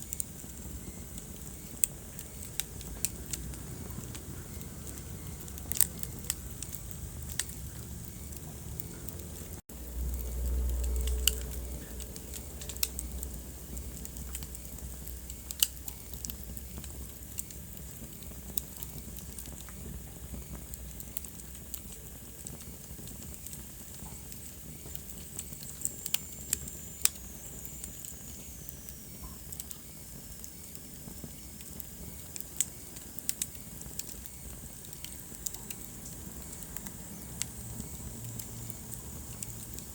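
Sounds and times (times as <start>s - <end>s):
sharp pops and snaps: 0.0s - 39.9s
steady hiss: 0.0s - 39.9s
wood fire crackling: 0.0s - 39.9s
low rumble: 2.9s - 15.2s.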